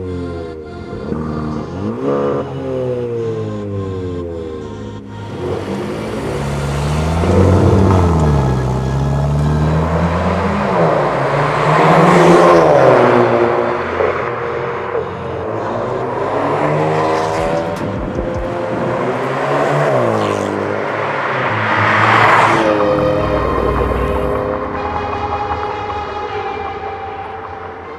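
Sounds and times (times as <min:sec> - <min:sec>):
car exhaust revving under acceleration: 0:05.0 - 0:25.4.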